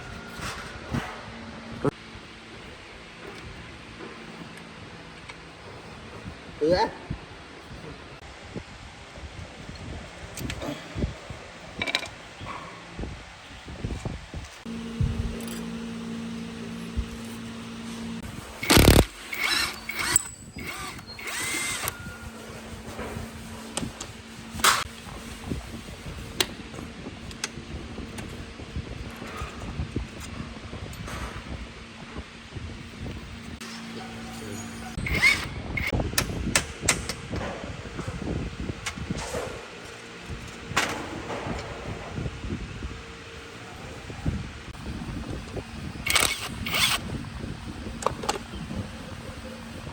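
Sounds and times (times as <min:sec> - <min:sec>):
metal parts scraping and clinking: 0:14.7 - 0:24.9, 0:46.0 - 0:47.0
power drill motor running: 0:14.7 - 0:24.9, 0:33.7 - 0:36.0, 0:45.0 - 0:47.2.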